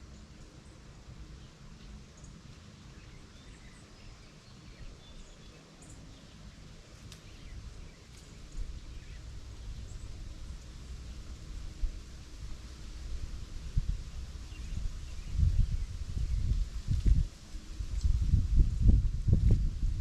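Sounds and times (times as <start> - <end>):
faint ticks: 7.0 - 7.4
low rumble: 7.4 - 20.0.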